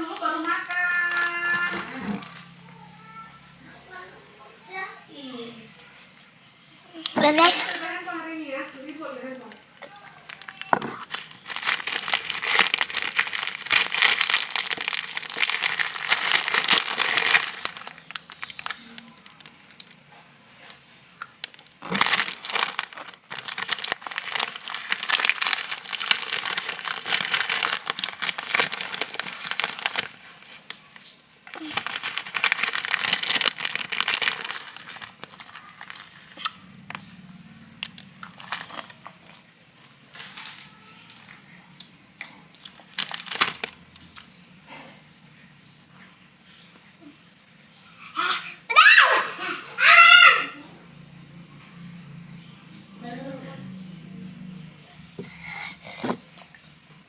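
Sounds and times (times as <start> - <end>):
plastic snack packet crinkling: 0.0 - 2.6, 7.0 - 39.4, 40.1 - 41.4, 42.2 - 44.3.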